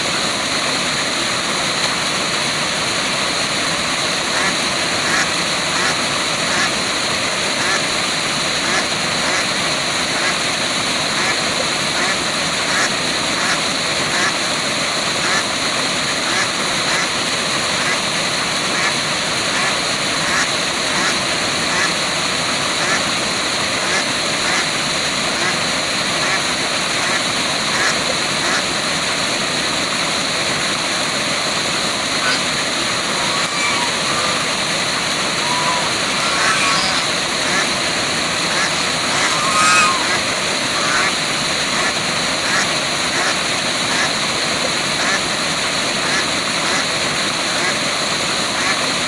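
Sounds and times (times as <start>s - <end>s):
waterfall rushing: 0.0s - 49.0s
ducks quacking: 4.3s - 6.8s, 7.5s - 7.9s, 8.6s - 10.5s, 11.1s - 14.4s, 15.2s - 15.5s, 16.2s - 17.1s, 18.7s - 22.0s, 22.7s - 23.1s, 23.8s - 24.7s, 25.4s - 25.6s, 26.2s - 28.7s, 32.0s - 44.2s, 45.0s - 45.2s.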